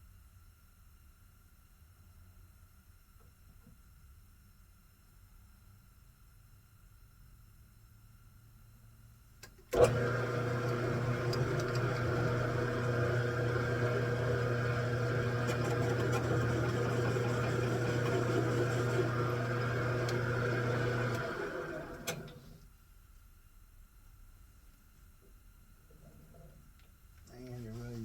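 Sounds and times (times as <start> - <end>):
lathe motor humming: 9.7 - 22.6.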